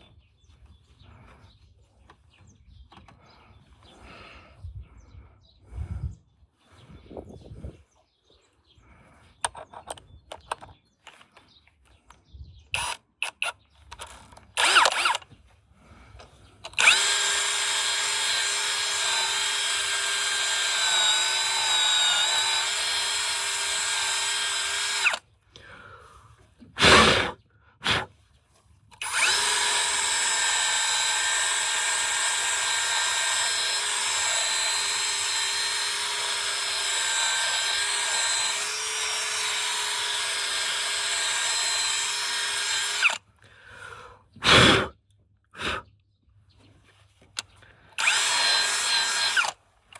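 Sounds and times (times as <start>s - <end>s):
clicks and knocks of tools: 9.4s - 12.2s
electric drill running: 12.8s - 15.2s, 16.7s - 25.2s, 29.0s - 43.2s, 48.0s - 49.6s.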